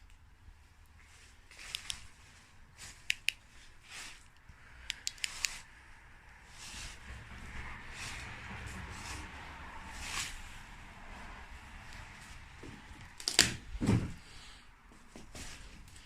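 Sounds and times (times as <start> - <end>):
rustling vegetation: 0.5 - 13.8
twigs snapping: 13.2 - 13.6.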